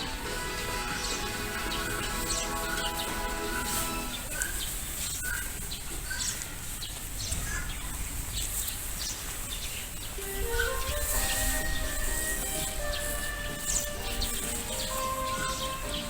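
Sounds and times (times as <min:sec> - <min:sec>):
music track: 0:00.0 - 0:04.4, 0:10.2 - 0:16.0
small birds chirping: 0:00.0 - 0:16.0.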